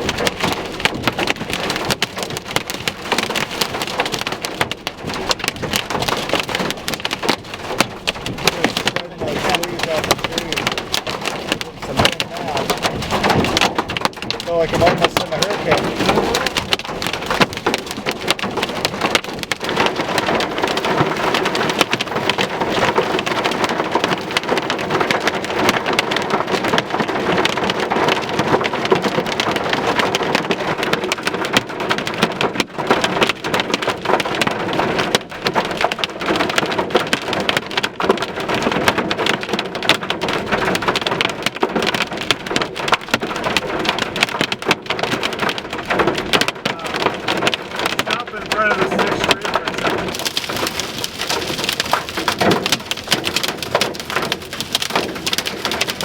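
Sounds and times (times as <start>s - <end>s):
heavy rain patter: 0.0s - 56.0s.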